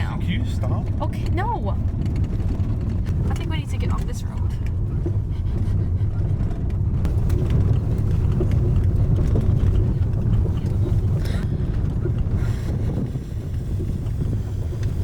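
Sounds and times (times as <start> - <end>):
car tyres rumbling on rocky road: 0.0 - 15.0
stones knocking and rattling: 6.6 - 12.4.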